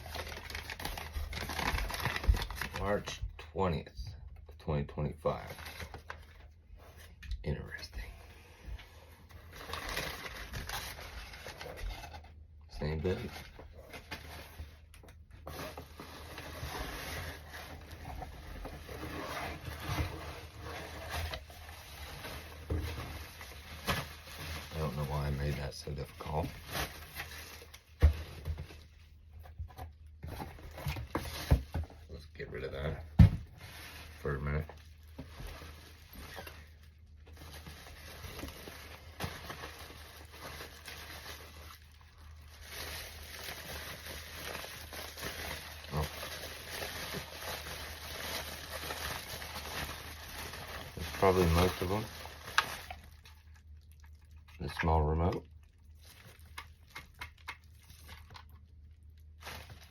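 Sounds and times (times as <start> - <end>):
cardboard and paper rustling: 0.0 - 3.2, 5.3 - 53.5, 59.2 - 59.9.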